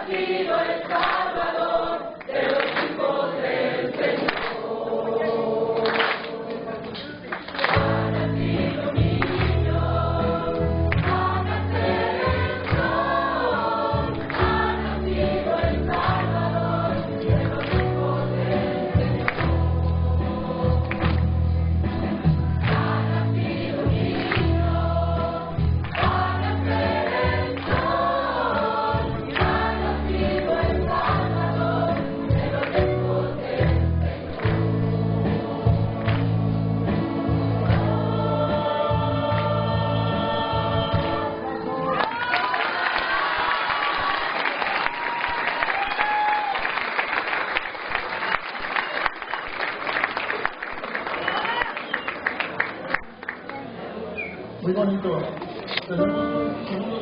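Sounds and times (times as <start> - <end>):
choir singing: 0.0 - 6.8, 7.7 - 21.6, 22.6 - 41.9
instrumental accompaniment: 7.8 - 41.9.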